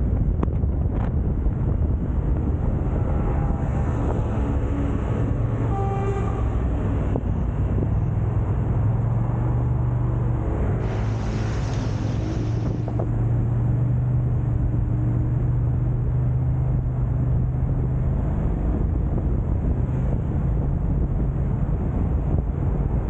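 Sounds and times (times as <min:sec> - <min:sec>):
car engine and road rumble: 0:00.0 - 0:23.0
rush of hiss: 0:10.8 - 0:12.9.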